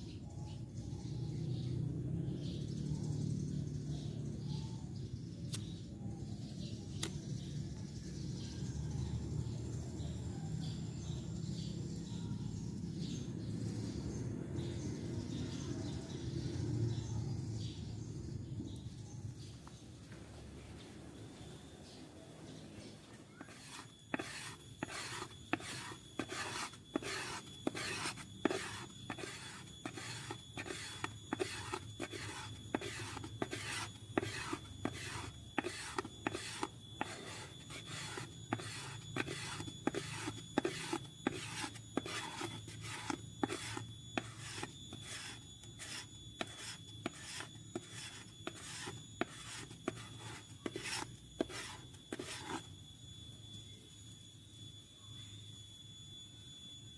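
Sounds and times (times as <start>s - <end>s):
knife scraping bamboo: 23.3s - 52.7s.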